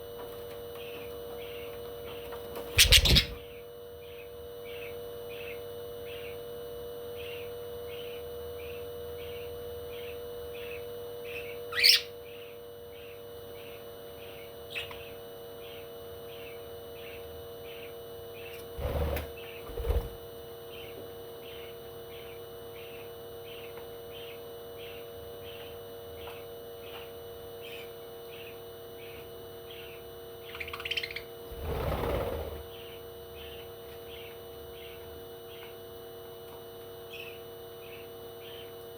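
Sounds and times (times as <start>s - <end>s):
electrical hum: 0.0s - 38.9s
bird chirping: 2.8s - 3.6s, 11.3s - 12.2s, 29.7s - 31.3s.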